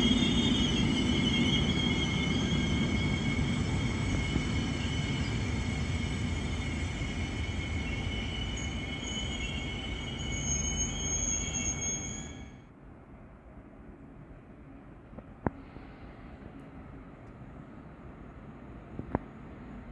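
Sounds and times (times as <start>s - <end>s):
train wheels squealing: 0.0s - 12.7s
low train rumble: 0.0s - 19.9s.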